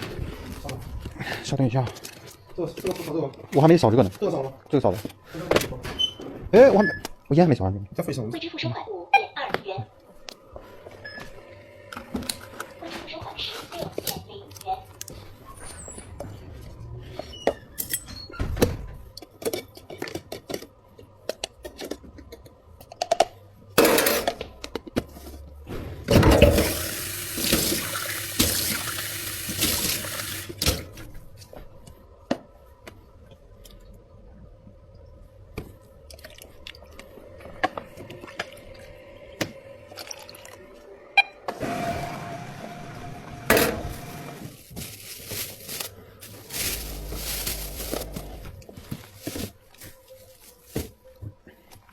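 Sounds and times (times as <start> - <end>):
water running from a tap: 26.4 - 30.6.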